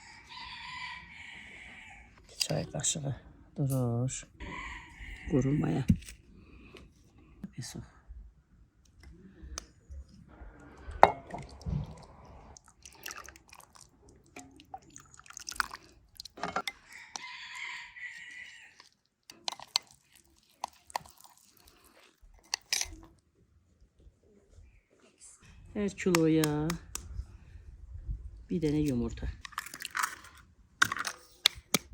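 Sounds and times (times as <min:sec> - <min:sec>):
spoon and containers clicking: 0:12.8 - 0:17.3, 0:18.4 - 0:23.1, 0:28.7 - 0:31.9.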